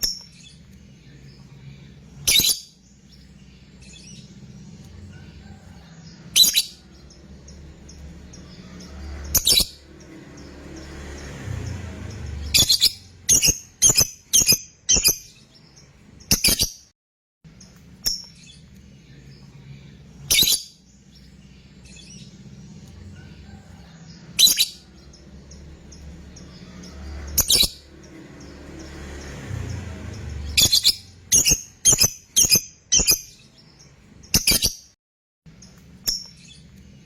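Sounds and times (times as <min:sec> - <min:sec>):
lovebird shrill calls: 0:02.2 - 0:02.8, 0:06.3 - 0:06.9, 0:12.4 - 0:15.4, 0:20.3 - 0:20.7, 0:24.4 - 0:24.8, 0:30.5 - 0:33.4.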